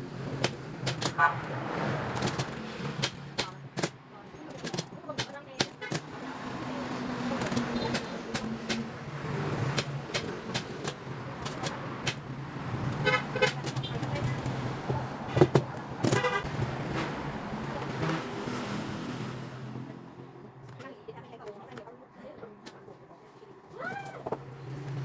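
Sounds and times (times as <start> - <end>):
road traffic: 0.0 - 25.0
vehicle horn tooting: 13.0 - 14.0, 16.1 - 17.2.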